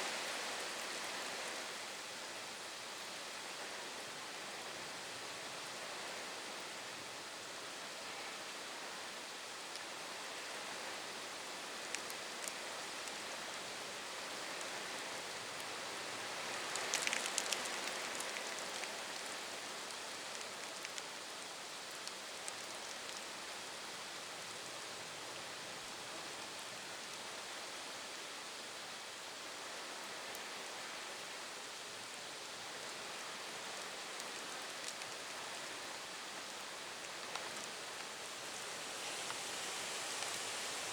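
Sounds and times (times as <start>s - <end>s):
heavy rain hissing: 37.6s - 40.9s.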